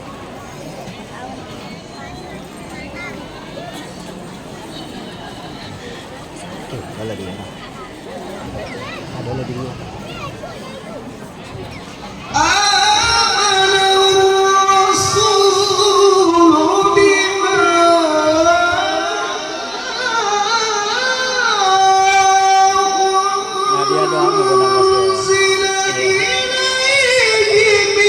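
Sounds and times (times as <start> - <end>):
man reciting melodically: 12.3 - 28.0.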